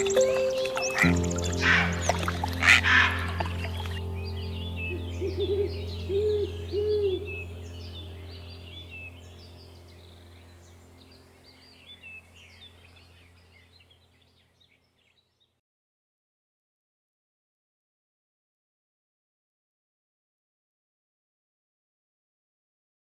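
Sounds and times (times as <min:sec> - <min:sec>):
owl hooting: 0:00.0 - 0:04.0, 0:04.9 - 0:07.5
small birds chirping: 0:00.0 - 0:15.5
steady low hum: 0:01.0 - 0:14.4.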